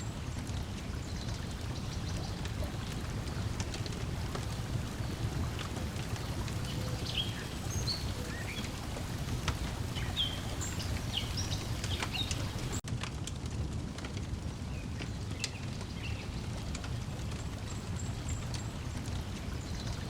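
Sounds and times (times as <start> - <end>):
water lapping at shore: 0.0 - 12.8, 15.3 - 20.0
wood fire crackling: 0.0 - 20.0
bird chirps: 6.5 - 12.8.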